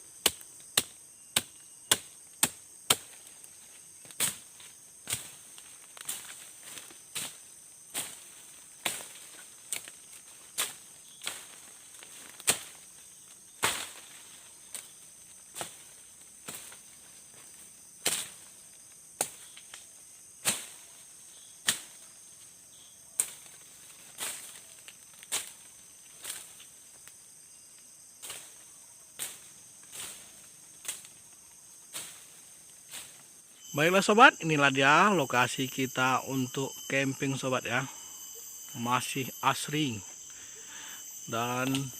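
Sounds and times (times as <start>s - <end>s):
crickets and insects droning: 0.0s - 41.9s
blade chopping undergrowth: 0.2s - 12.9s, 13.6s - 14.9s.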